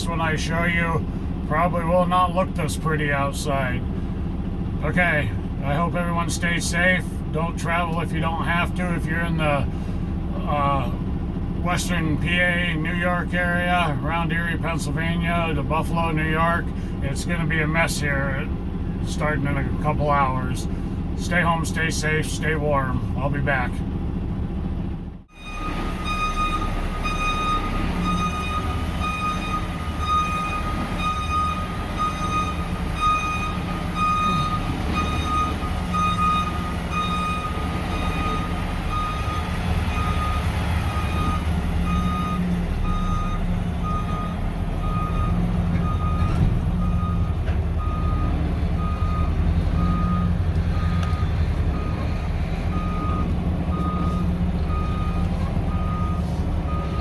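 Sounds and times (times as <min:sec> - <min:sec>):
diesel truck engine running: 0:00.0 - 0:57.0
electronic beeper beeping: 0:25.4 - 0:39.4.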